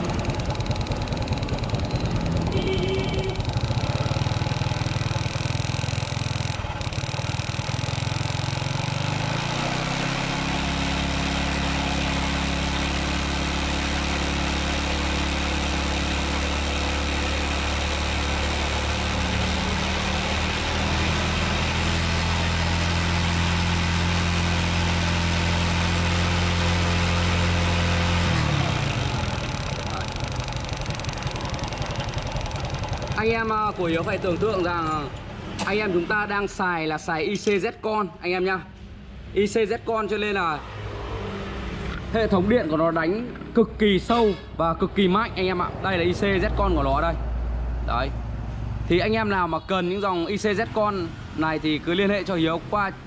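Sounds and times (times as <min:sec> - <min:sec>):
motorbike engine running: 0:00.0 - 0:35.4.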